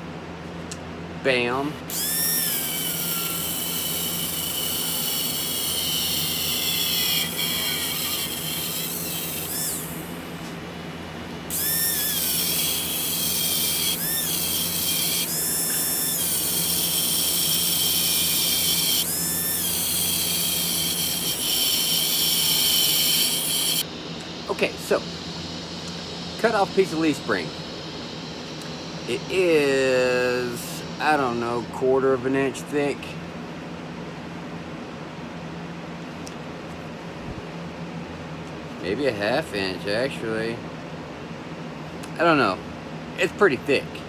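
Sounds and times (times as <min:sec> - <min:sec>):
grinder whining on metal: 0:01.9 - 0:10.5, 0:11.5 - 0:23.9, 0:24.5 - 0:32.6.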